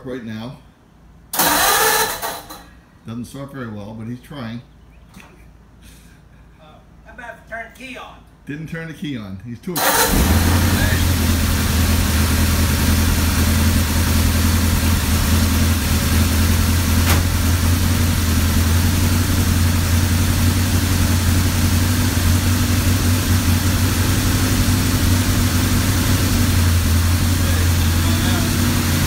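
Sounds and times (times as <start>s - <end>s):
car engine idling: 9.8s - 29.0s.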